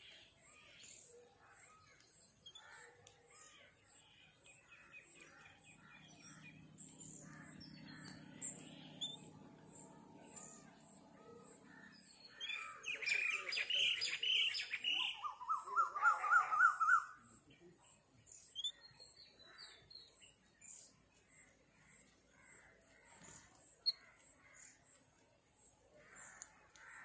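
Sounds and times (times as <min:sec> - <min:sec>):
birds chirping: 0:00.0 - 0:27.0
harsh repeated bird calls: 0:04.8 - 0:17.4.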